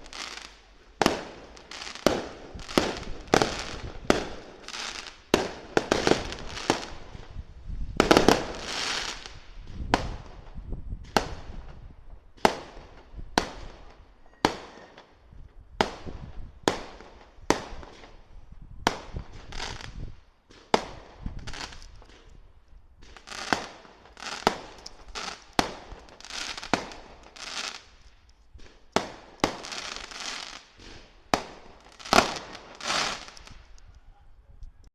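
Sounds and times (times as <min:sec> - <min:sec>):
fireworks bangs: 0:00.0 - 0:15.2, 0:18.8 - 0:22.3, 0:23.0 - 0:28.0, 0:28.6 - 0:33.8.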